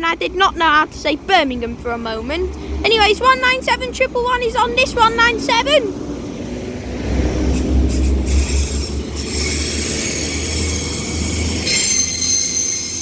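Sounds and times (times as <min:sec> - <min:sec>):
diesel train engine rumble: 0:00.0 - 0:13.0
train wheel squeal: 0:07.4 - 0:13.0.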